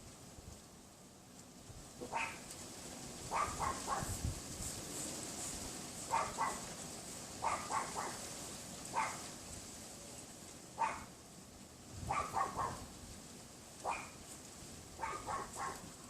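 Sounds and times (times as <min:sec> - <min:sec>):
wind rumbling on microphone: 0:01.7 - 0:06.8, 0:11.8 - 0:16.0
small dog yapping: 0:02.0 - 0:02.5, 0:03.3 - 0:04.2, 0:06.1 - 0:06.7, 0:07.4 - 0:08.2, 0:08.9 - 0:09.3, 0:10.8 - 0:11.1, 0:12.1 - 0:12.9, 0:13.8 - 0:14.2, 0:15.0 - 0:15.9.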